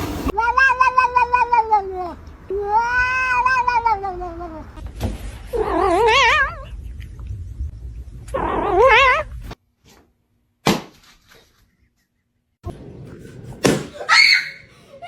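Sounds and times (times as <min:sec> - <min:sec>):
cat yowling: 0:00.3 - 0:04.8, 0:05.5 - 0:06.7, 0:08.4 - 0:09.3.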